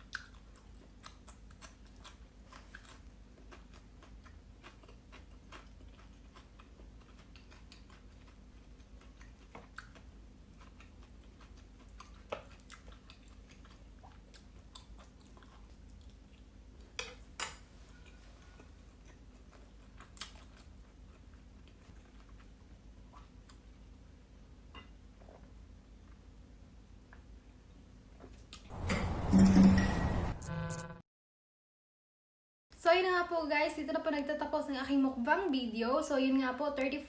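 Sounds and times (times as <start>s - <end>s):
person chewing: 0.0s - 17.0s, 17.8s - 23.9s.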